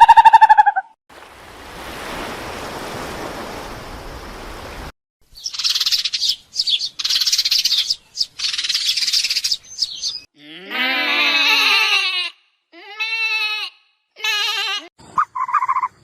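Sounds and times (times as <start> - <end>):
bird chirping trills: 5.3 - 10.3.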